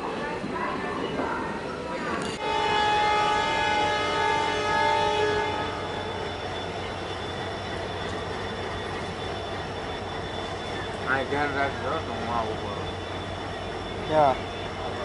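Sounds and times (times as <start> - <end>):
moving train running noise: 0.0 - 15.0
locomotive horn blast: 2.4 - 6.1.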